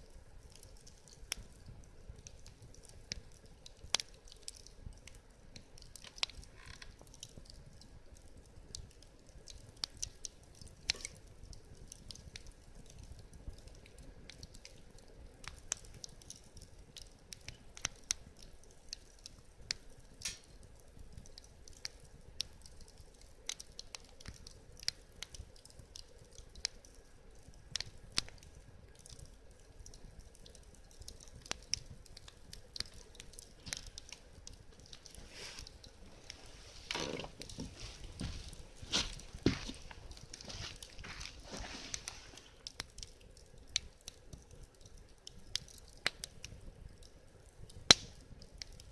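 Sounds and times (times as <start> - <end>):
wood fire crackling: 0.0 - 48.9
hiss of burning: 21.2 - 48.9.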